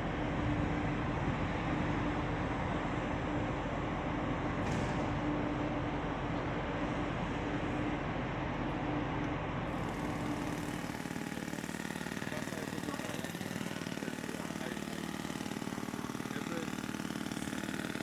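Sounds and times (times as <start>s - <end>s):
engine running steadily: 0.0s - 18.0s
engine with fast even pulsing: 9.7s - 18.0s.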